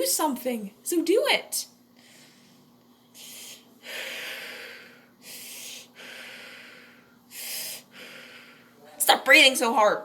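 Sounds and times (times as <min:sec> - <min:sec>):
person breathing hard: 0:02.0 - 0:08.8.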